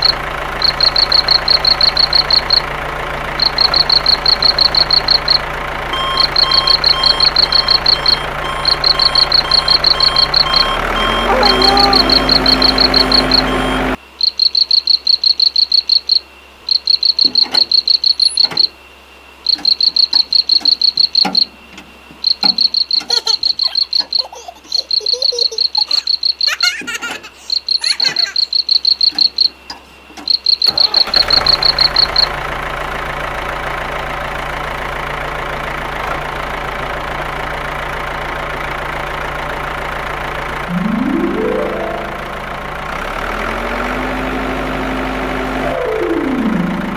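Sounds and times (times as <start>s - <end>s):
high-pitched chirping trills: 0.0s - 2.6s, 3.4s - 5.4s, 6.0s - 15.6s, 22.3s - 29.6s, 40.7s - 43.0s, 45.6s - 46.9s
toy electronic engine sound: 0.0s - 16.1s, 22.2s - 29.6s, 30.3s - 32.4s, 40.6s - 43.5s, 44.3s - 46.9s.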